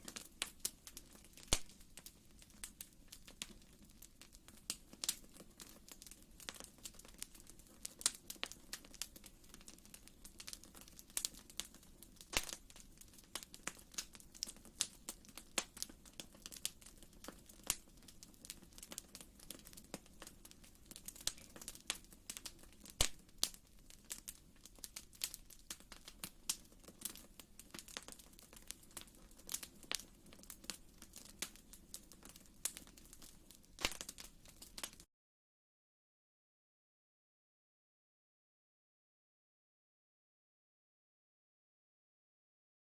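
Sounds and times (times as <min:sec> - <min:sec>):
wood fire crackling: 0:00.0 - 0:35.1.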